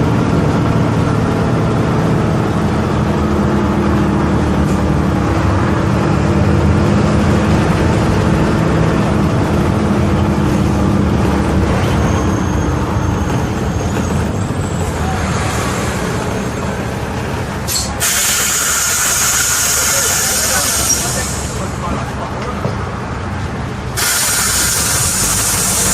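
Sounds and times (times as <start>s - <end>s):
diesel bus engine running: 0.0s - 25.9s
compressed air hiss: 17.7s - 21.6s, 24.0s - 25.9s.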